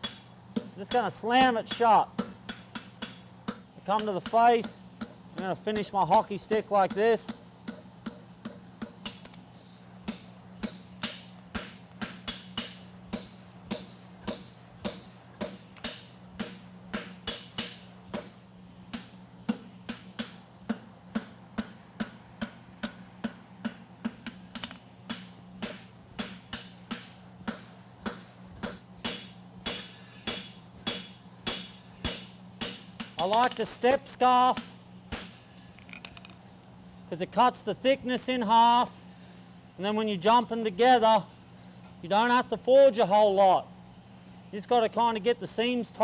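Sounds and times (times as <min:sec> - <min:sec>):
hammer striking steel on anvil: 0:00.0 - 0:09.4, 0:10.0 - 0:36.2.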